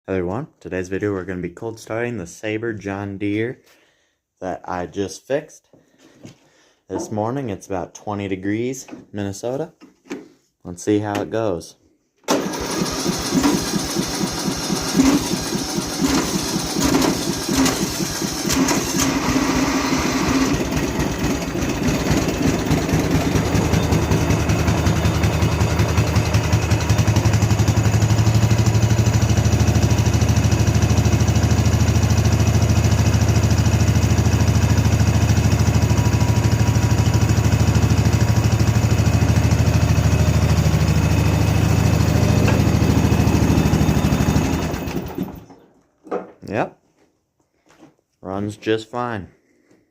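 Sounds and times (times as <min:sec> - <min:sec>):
lawn tractor engine running: 0:12.3 - 0:45.7.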